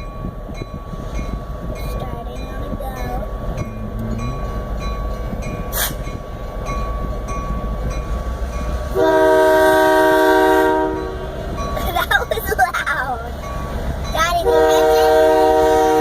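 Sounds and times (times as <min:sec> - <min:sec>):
diesel locomotives rumbling: 0:00.0 - 0:16.0
locomotive air horn blast: 0:05.7 - 0:06.0, 0:08.9 - 0:11.2, 0:14.4 - 0:16.0.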